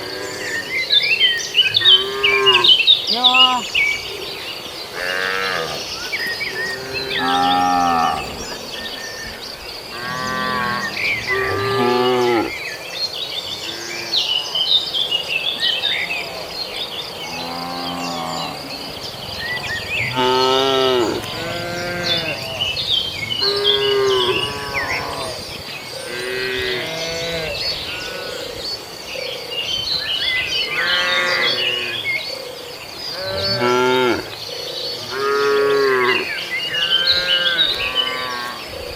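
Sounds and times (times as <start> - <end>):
cattle mooing: 1.8 - 3.7, 6.6 - 8.6, 19.7 - 22.8, 23.4 - 25.4.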